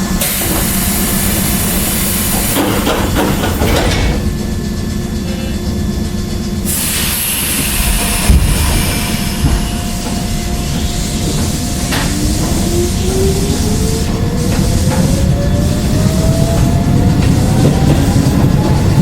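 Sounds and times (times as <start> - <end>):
train wheels rumbling: 0.0 - 19.0
air brake hiss: 0.2 - 2.6, 6.6 - 12.1.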